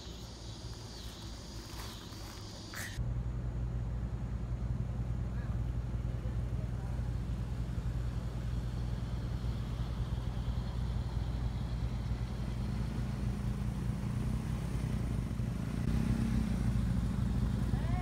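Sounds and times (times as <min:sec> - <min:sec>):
car engine droning: 0:00.0 - 0:18.0.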